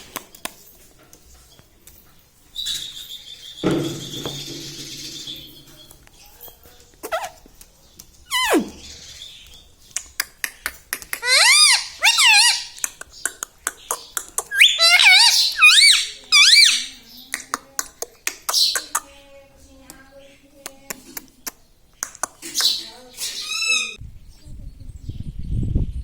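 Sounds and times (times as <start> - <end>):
parrot squeaky calls: 7.0 - 7.4, 8.3 - 9.4, 11.2 - 12.8, 13.9 - 17.0, 22.4 - 24.0.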